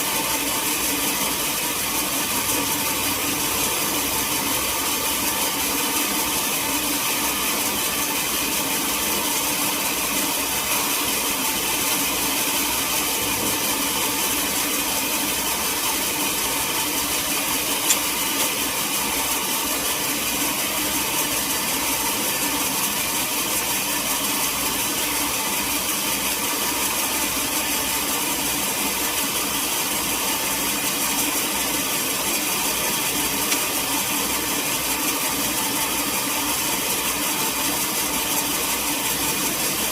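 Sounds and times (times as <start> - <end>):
sawmill machinery running: 0.0 - 39.9
sharp click: 17.8 - 18.0.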